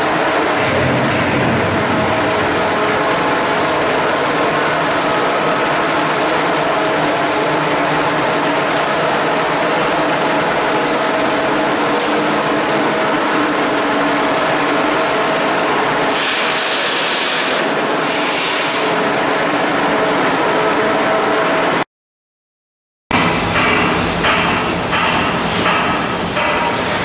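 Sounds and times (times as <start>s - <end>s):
industrial machinery humming: 0.0s - 18.1s.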